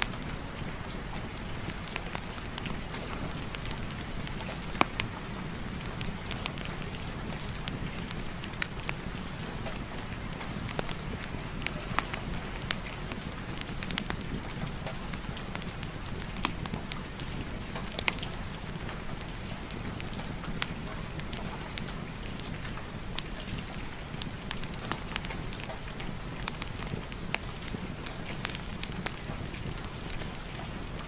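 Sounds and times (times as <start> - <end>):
steady rain: 0.0 - 31.0
wood fire crackling: 0.0 - 31.0.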